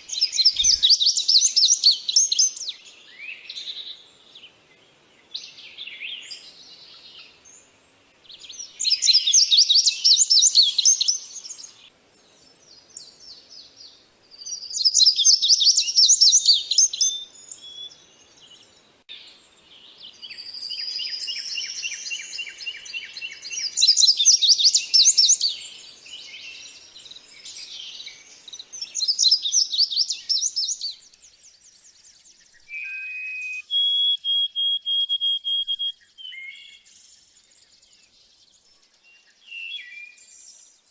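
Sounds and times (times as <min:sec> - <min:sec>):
songbirds trilling: 0:00.0 - 0:40.9
bird whistled notes: 0:32.6 - 0:36.8.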